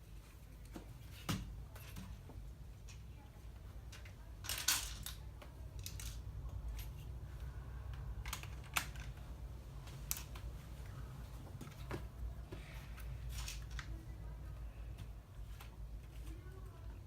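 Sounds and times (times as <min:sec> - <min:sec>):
steady low hum: 0:00.0 - 0:17.0
plastic bricks clicking together: 0:03.9 - 0:05.2, 0:05.8 - 0:06.3, 0:07.9 - 0:09.2.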